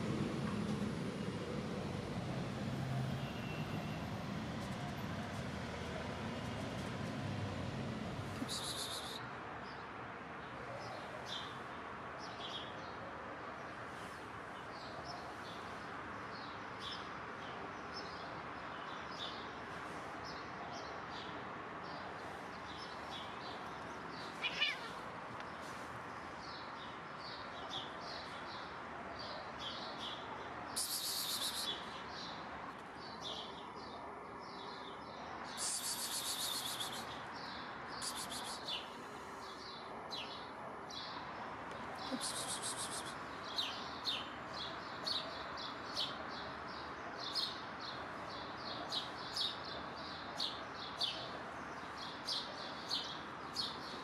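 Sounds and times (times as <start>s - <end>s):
steady outdoor noise: 0.0s - 54.0s
small songbirds chirping: 7.9s - 9.8s, 13.9s - 54.0s
birds chirping: 8.0s - 9.2s, 30.8s - 32.4s, 33.0s - 46.2s
loud rapid bird trills: 42.0s - 43.2s.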